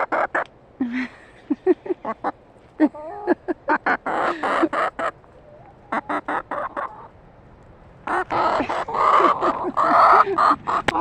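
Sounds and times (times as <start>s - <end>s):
chickens squawking and clucking: 0.0s - 0.5s, 1.9s - 7.2s, 8.0s - 11.0s.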